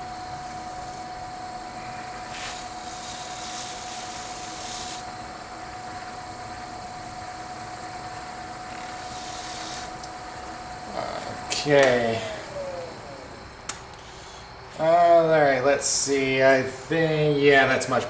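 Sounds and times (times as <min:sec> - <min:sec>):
wood lathe motor humming: 0:00.0 - 0:13.8.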